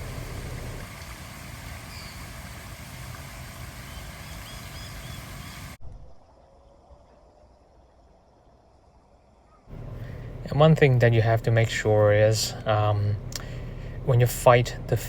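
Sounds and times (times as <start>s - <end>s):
low rumble with hiss: 0.0s - 15.0s
faint bird chirps: 1.8s - 2.3s, 3.9s - 5.7s.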